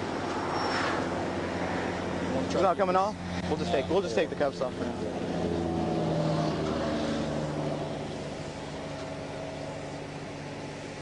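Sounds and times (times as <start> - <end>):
vehicle passing on highway: 0.0 - 11.0.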